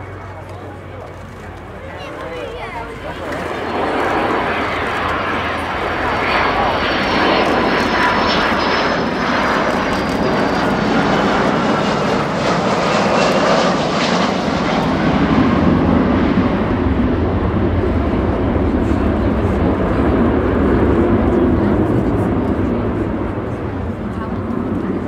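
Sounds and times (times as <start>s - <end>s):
jet engine deep rumble: 0.0s - 25.0s
jet engine high whine: 0.0s - 25.0s.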